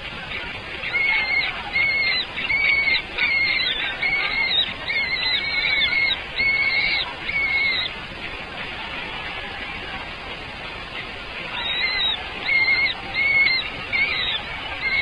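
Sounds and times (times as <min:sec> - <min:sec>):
birds calling: 0:11.5 - 0:15.0.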